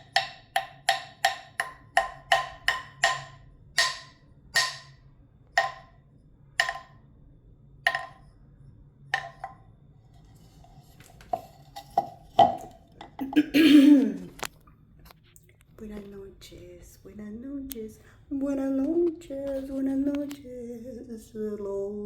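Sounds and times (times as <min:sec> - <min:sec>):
hollow wooden knocks: 0:00.0 - 0:05.0, 0:05.6 - 0:06.0, 0:06.6 - 0:07.0, 0:07.9 - 0:08.3, 0:09.1 - 0:09.6, 0:11.3 - 0:13.2.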